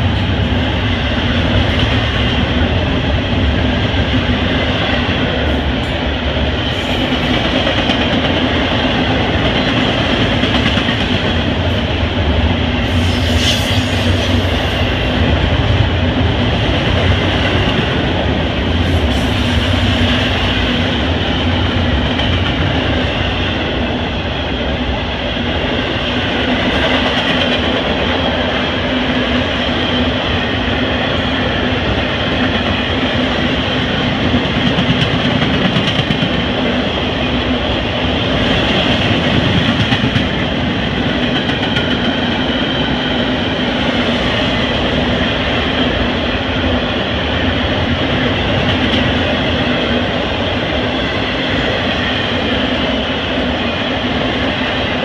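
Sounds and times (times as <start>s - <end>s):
freight cars rumbling on rails: 0.0s - 55.0s.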